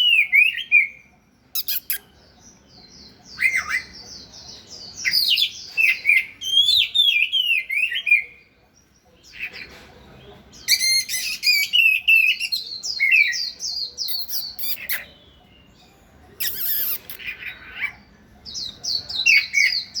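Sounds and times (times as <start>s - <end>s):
bird singing chirps and whistles: 0.0s - 2.2s, 5.0s - 8.3s, 10.7s - 15.4s, 16.4s - 17.6s.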